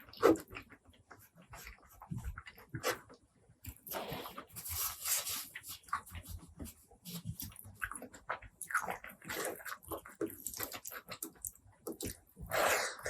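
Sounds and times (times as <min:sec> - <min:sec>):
person chewing and lip-smacking: 0:07.1 - 0:13.0.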